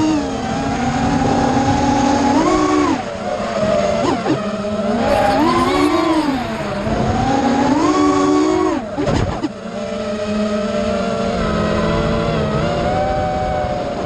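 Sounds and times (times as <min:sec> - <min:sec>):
quadcopter motors whining: 0:05.1 - 0:07.2.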